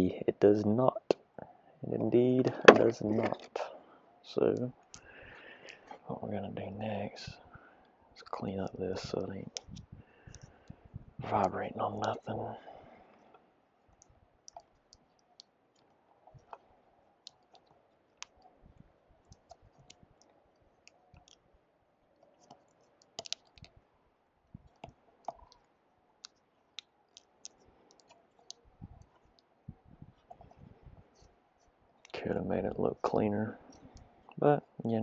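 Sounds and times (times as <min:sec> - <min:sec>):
small clicks and taps of hands: 0:22.2 - 0:23.8.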